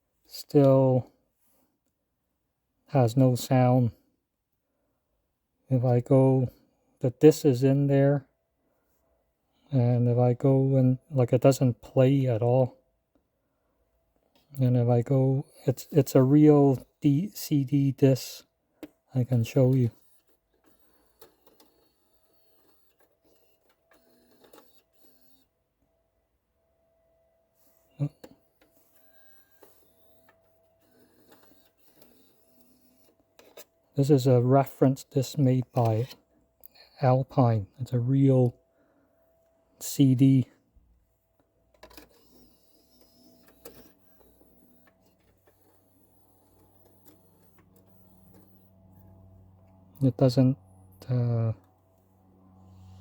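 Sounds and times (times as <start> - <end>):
cd drive whirring: 15.2 - 25.6, 27.0 - 37.0, 40.8 - 53.0
low motor whir: 50.6 - 53.0.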